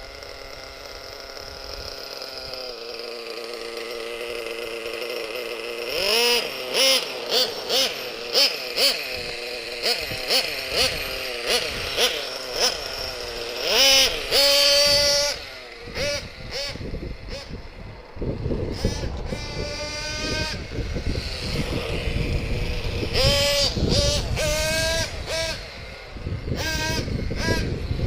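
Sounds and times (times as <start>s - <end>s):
model engine revving: 0.0s - 28.0s.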